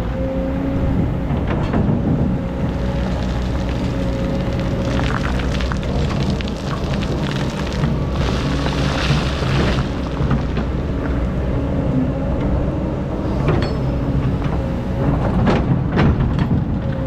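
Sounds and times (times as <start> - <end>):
excavator engine running: 0.0 - 17.0
crackling rush of sand: 2.5 - 11.5.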